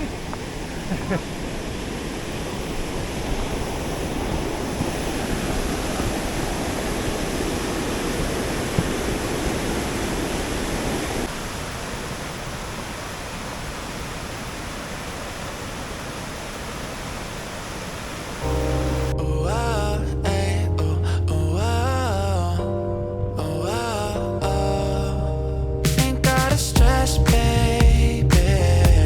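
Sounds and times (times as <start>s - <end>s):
waterfall rushing: 0.0s - 19.2s.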